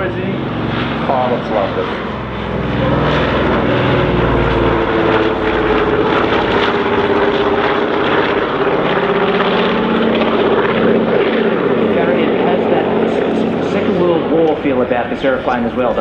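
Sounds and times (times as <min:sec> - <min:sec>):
propeller aircraft flyby drone: 0:00.0 - 0:16.0.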